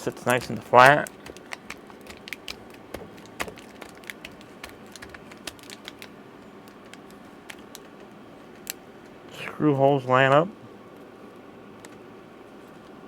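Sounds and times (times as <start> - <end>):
hands handling laptop parts: 0.0 - 9.2.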